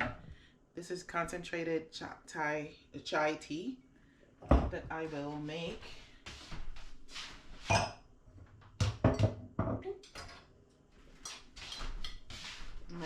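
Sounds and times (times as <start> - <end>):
glassware knocking and clinking: 7.7 - 8.0, 8.8 - 10.4.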